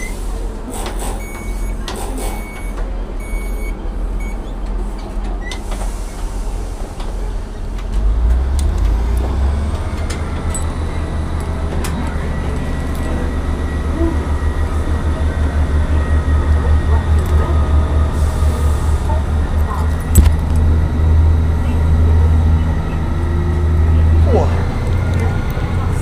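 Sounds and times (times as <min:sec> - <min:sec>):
train door warning beeps: 0:00.0 - 0:00.2, 0:00.9 - 0:04.6, 0:05.4 - 0:05.6
train diesel engine rumble: 0:00.0 - 0:26.0.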